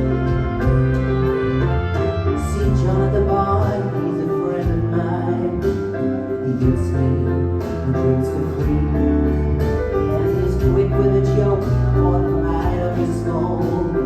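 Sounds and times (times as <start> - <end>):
live band with piano: 0.0 - 14.0
person singing: 1.9 - 14.0.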